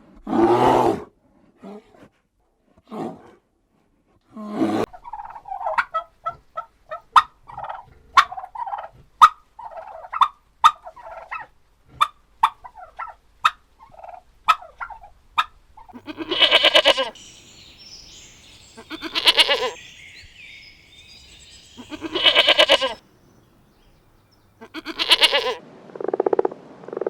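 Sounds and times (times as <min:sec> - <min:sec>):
poultry rattling calls: 0:16.0 - 0:24.0.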